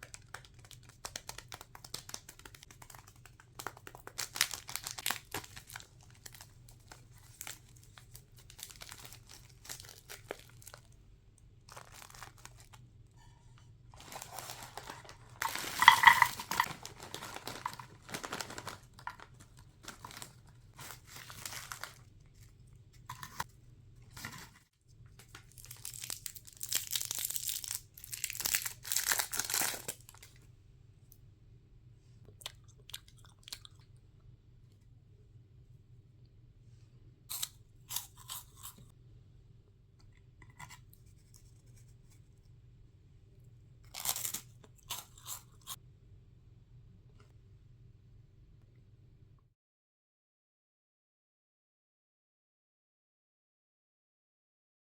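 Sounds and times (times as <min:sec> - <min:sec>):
snack wrappers crinkling and tearing: 0:00.0 - 0:11.0, 0:11.7 - 0:12.8, 0:14.0 - 0:22.5, 0:25.2 - 0:30.4, 0:37.3 - 0:38.8, 0:43.9 - 0:45.8.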